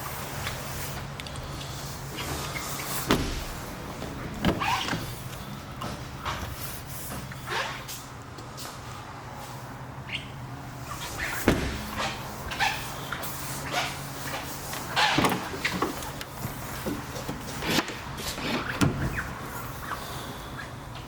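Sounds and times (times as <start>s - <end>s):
steady low hum: 0.0s - 7.4s, 10.4s - 21.0s
clunks and clicks: 14.4s - 19.4s.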